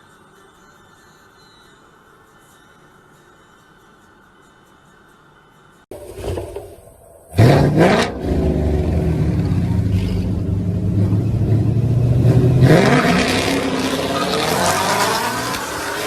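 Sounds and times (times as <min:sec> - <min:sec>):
car engine revving hard: 0:07.3 - 0:16.0.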